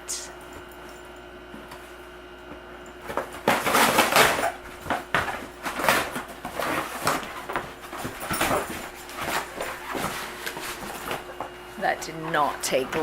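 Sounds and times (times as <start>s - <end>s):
cardboard tearing and crunching: 3.4s - 11.2s.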